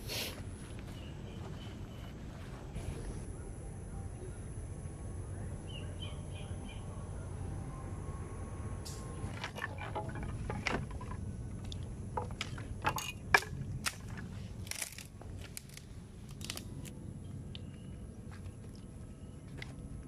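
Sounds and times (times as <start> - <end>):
dry branches knocking and cracking: 9.3 - 16.9.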